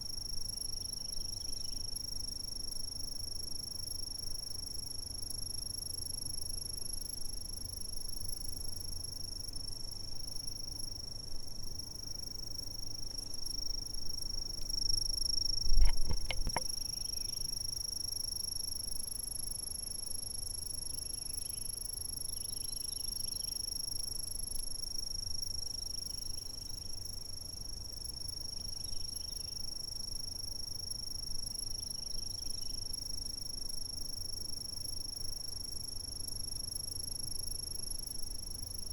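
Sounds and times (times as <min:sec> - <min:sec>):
insects trilling: 0:00.1 - 0:02.4, 0:11.8 - 0:19.2, 0:20.2 - 0:35.3
fainter insect chirps: 0:11.9 - 0:18.8, 0:20.7 - 0:23.9, 0:24.8 - 0:29.9, 0:30.8 - 0:35.2
thump with sharp clicks: 0:15.7 - 0:16.7.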